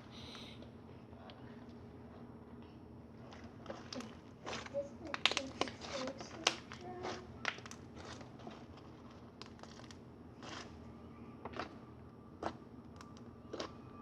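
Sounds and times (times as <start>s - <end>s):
faint sticky pops and crackles: 4.4s - 10.7s.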